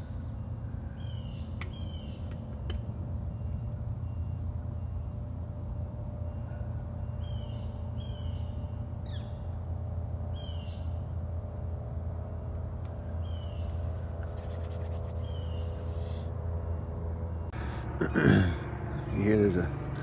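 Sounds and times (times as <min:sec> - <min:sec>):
birds calling: 0:00.0 - 0:11.3, 0:12.9 - 0:20.0
steady low rumble: 0:00.0 - 0:20.0.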